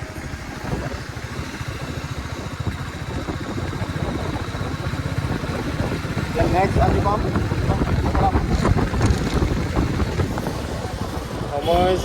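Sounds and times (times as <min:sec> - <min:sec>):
road and wind noise: 0:00.0 - 0:12.0
motorcycle engine thudding: 0:05.2 - 0:11.7.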